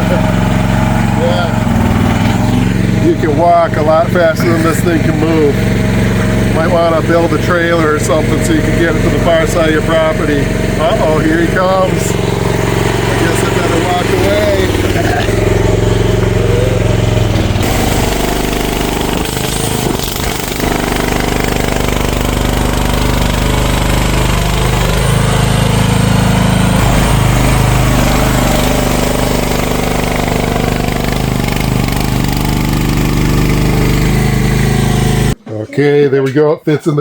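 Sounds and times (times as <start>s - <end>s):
mini excavator engine running: 0.0s - 35.4s
excavator tracks moving: 11.0s - 34.3s.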